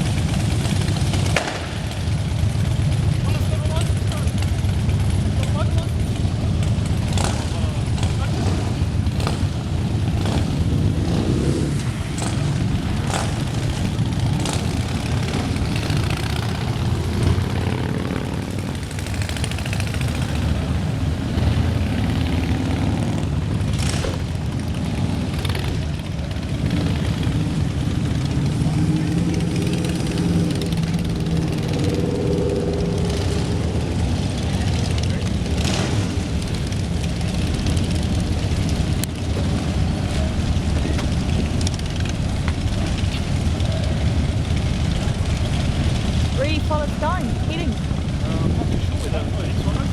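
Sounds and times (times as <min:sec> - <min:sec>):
group of motorcycles passing: 0:00.0 - 0:49.9.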